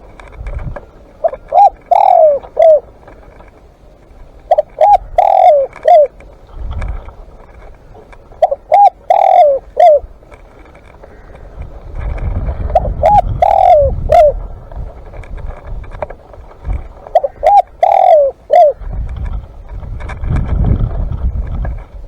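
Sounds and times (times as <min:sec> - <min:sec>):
dove cooing: 0:01.1 - 0:03.2, 0:04.4 - 0:06.2, 0:07.8 - 0:10.3, 0:12.4 - 0:14.6, 0:16.6 - 0:19.0.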